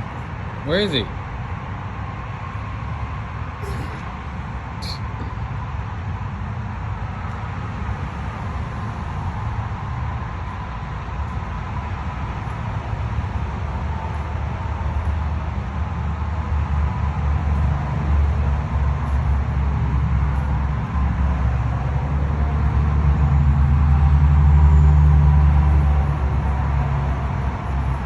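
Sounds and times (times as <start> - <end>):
vehicle engine rumbling: 2.4 - 6.5, 22.5 - 28.0.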